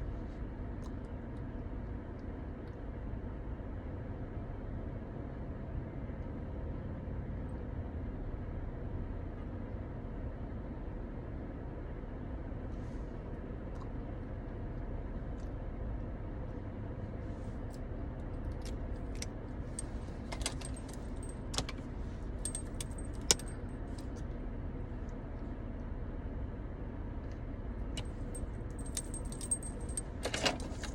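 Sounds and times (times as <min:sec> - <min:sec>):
steady low rumble: 0:12.8 - 0:30.9
light sharp clicks and jingles: 0:18.2 - 0:24.2, 0:27.9 - 0:30.9.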